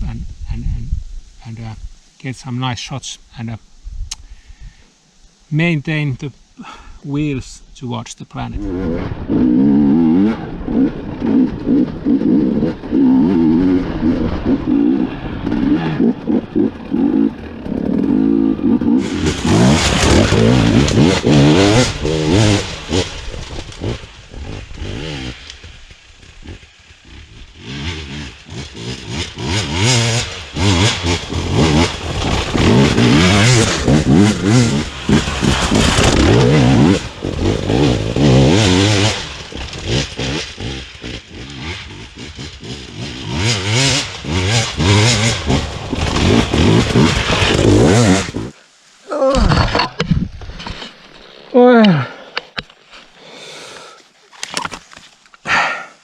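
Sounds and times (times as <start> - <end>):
motorcycle engine revving hard: 8.6 - 48.6.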